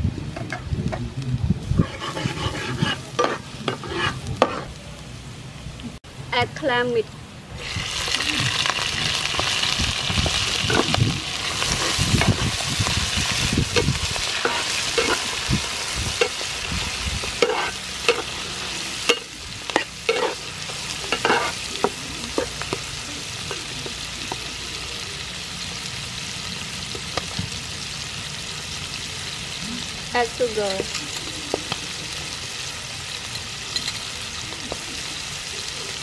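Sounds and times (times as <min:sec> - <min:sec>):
clams sizzling in oil: 0:01.6 - 0:05.7, 0:06.3 - 0:36.0
metal spatula scraping a pan: 0:01.8 - 0:04.8, 0:10.6 - 0:22.7.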